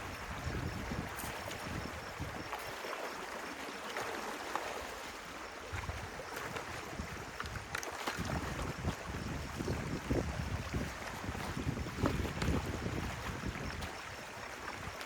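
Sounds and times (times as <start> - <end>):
wind rumbling on microphone: 0.0 - 2.6, 5.6 - 15.0
stream water running: 0.0 - 15.0.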